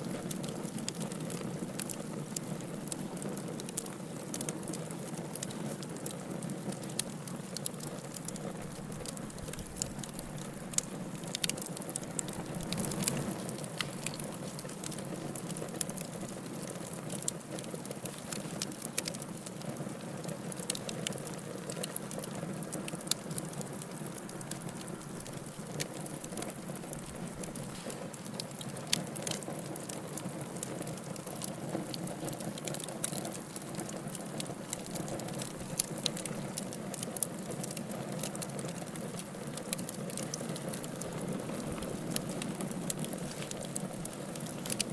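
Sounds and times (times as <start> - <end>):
fire crackling and popping: 0.0 - 44.9
fire hissing: 22.8 - 28.9.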